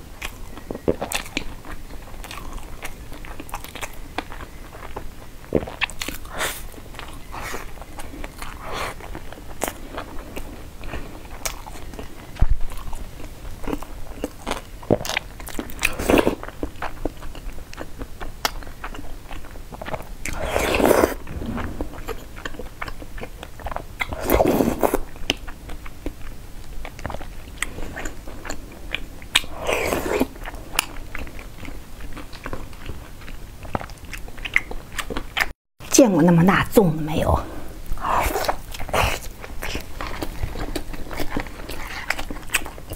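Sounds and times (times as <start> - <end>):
person chewing food: 0.2 - 35.6, 37.8 - 42.9.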